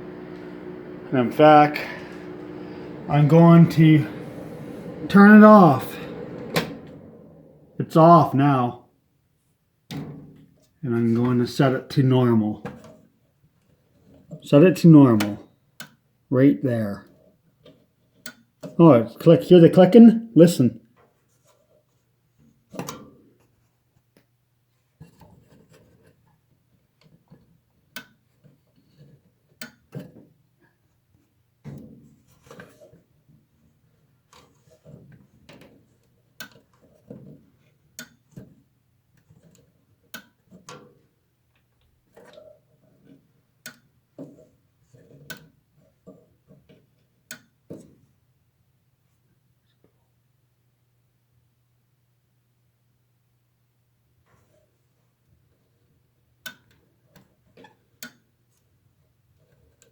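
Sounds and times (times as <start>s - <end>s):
air conditioner clicking: 0.0s - 8.0s
faint steady hum: 0.0s - 8.7s.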